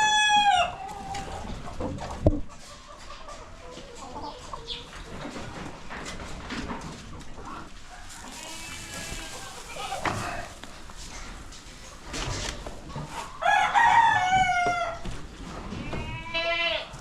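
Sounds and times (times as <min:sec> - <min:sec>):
chicken scratching: 0:00.0 - 0:16.1
chicken clucking: 0:00.0 - 0:16.2
rooster crowing: 0:13.4 - 0:15.0.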